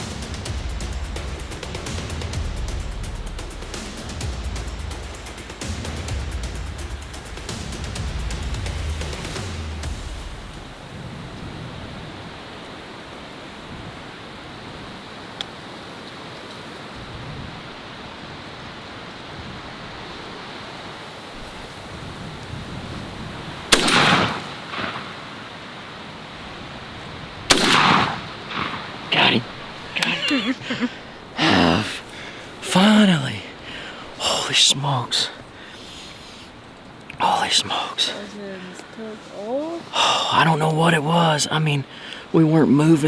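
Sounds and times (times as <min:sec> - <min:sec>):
steady outdoor hiss: 0:00.0 - 0:43.0
loud gunshots: 0:23.7 - 0:25.6, 0:27.5 - 0:30.3.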